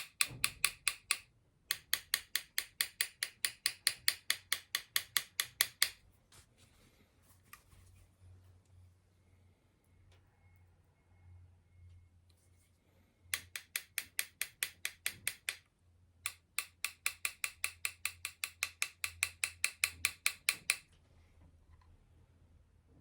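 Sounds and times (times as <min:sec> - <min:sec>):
hammer tapping on metal: 0:00.0 - 0:06.0, 0:13.3 - 0:15.6, 0:16.2 - 0:20.9.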